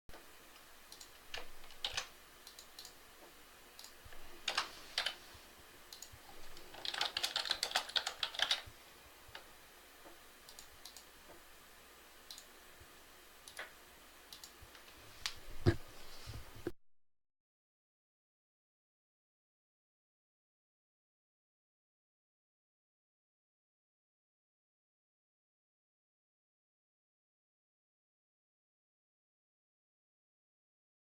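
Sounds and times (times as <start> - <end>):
typing on computer keyboard: 0.9 - 3.0, 4.5 - 5.2, 5.9 - 8.7.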